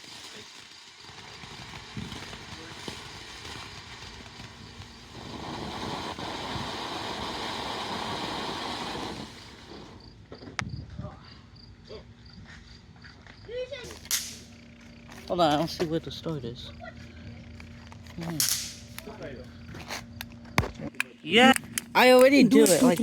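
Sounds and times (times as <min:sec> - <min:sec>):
firework hissing: 0:00.0 - 0:10.5, 0:13.8 - 0:16.6, 0:17.6 - 0:20.2, 0:22.5 - 0:23.0
sharp crack: 0:13.8 - 0:14.6, 0:18.2 - 0:19.2, 0:20.2 - 0:23.0.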